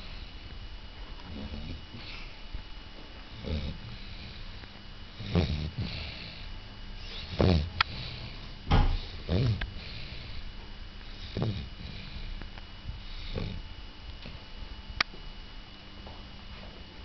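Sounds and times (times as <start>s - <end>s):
dog snoring: 0.0s - 0.4s, 1.2s - 2.4s, 3.3s - 10.4s, 11.0s - 14.5s.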